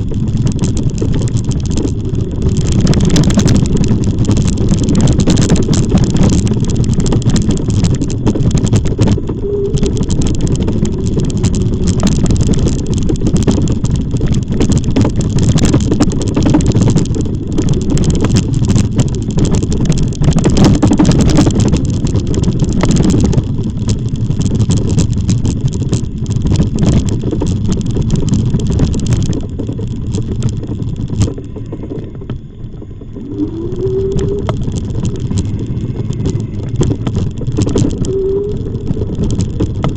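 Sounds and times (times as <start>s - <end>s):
wind buffeting microphone: 0.0s - 39.9s
bike knocks and rattles: 33.8s - 39.9s.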